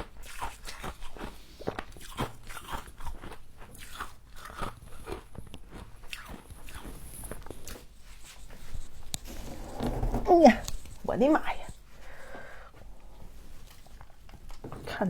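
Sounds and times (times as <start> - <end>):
chewing crunchy frost: 0.0 - 8.4.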